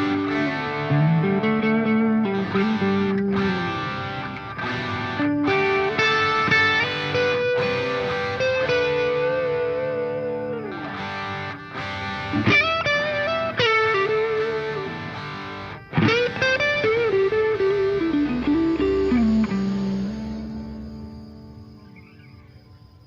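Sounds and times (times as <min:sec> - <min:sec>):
distorted electric guitar melody: 0:00.0 - 0:23.0.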